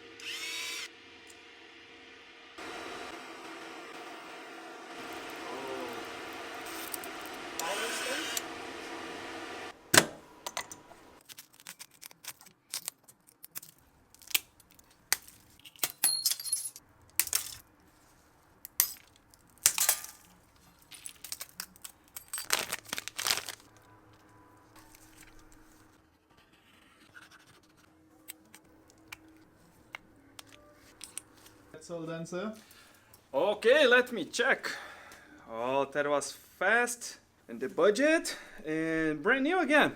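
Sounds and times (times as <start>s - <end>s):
small tools clicking and scraping: 6.6s - 8.4s, 10.5s - 17.7s.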